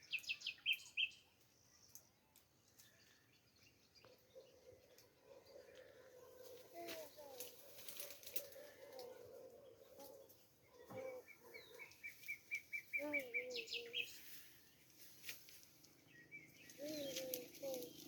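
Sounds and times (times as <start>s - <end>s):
high sweeping bird chirps: 11.2s - 14.4s.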